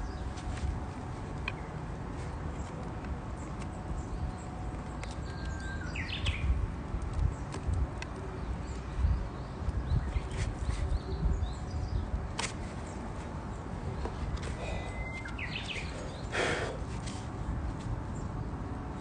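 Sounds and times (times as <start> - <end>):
bird singing whistle: 14.8 - 16.3.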